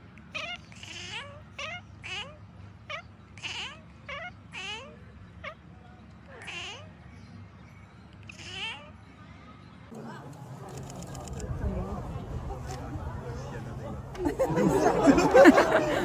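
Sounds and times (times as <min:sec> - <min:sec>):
cat meowing: 0:00.3 - 0:05.6, 0:06.3 - 0:06.9, 0:08.2 - 0:08.9.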